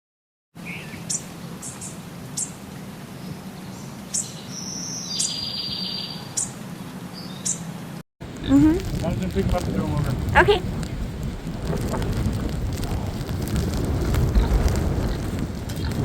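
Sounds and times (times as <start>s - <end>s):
small birds chirping: 0.6s - 7.8s.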